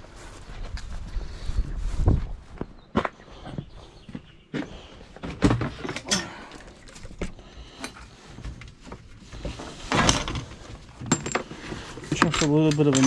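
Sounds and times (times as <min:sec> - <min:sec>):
clatter of tools being handled: 0:05.2 - 0:13.0.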